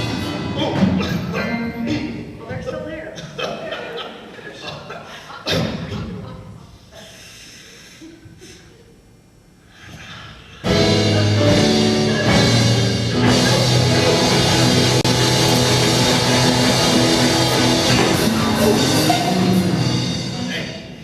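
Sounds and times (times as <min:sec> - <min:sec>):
drums: 0:00.0 - 0:02.4, 0:09.9 - 0:21.0
bass line: 0:10.7 - 0:20.6
electric guitar chords: 0:10.7 - 0:21.0.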